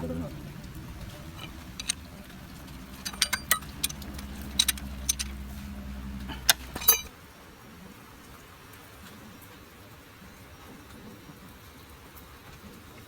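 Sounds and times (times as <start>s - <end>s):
steady low hum: 0.0s - 7.1s
metal tools clinking: 0.7s - 7.1s.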